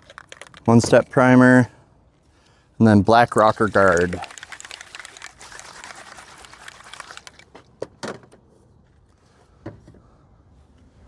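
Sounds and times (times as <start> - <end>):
rustling handling noise: 0.0 - 2.5, 3.1 - 8.0.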